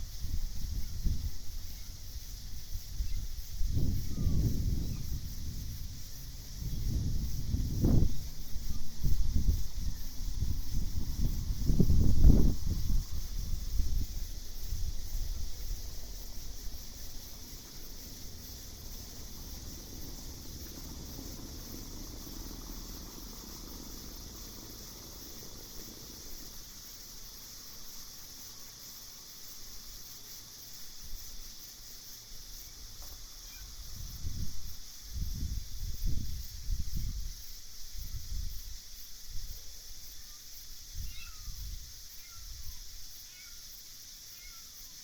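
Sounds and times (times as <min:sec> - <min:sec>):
night insects chorus: 0:00.0 - 0:45.0
low rumble: 0:03.6 - 0:26.4.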